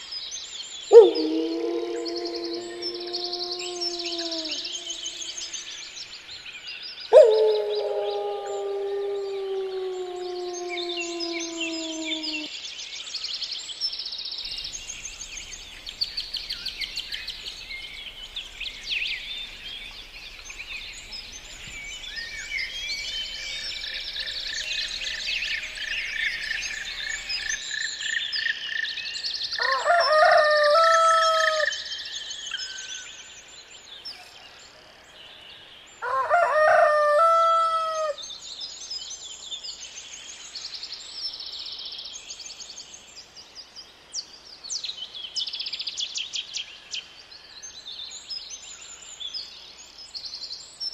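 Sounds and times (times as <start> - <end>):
small birds chirping: 0.0 - 12.5, 13.4 - 34.6
rooster crowing: 0.9 - 5.2, 29.6 - 31.8, 36.0 - 38.2.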